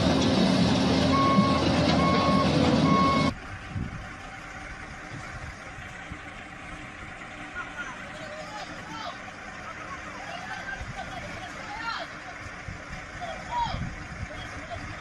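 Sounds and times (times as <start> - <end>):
loud engine running: 0.0 - 15.0
reversing alarm beeping: 1.1 - 3.4.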